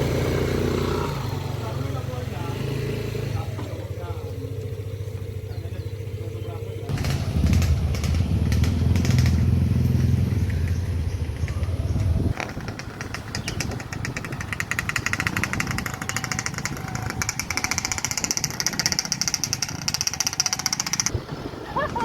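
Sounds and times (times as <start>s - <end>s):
motorcycle engine running: 0.0s - 21.9s
high-pitched rattling buzz: 13.4s - 21.1s.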